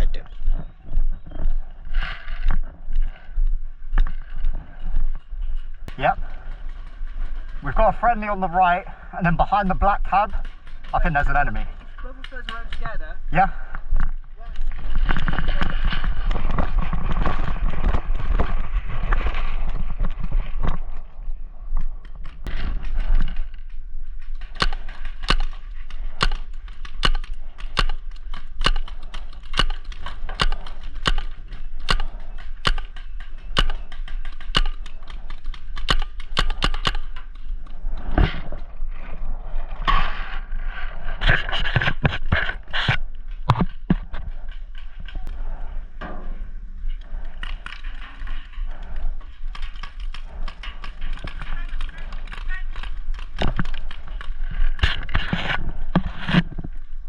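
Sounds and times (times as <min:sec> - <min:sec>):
rustling noise: 0:00.3 - 0:57.0
paintball markers firing: 0:24.3 - 0:37.3.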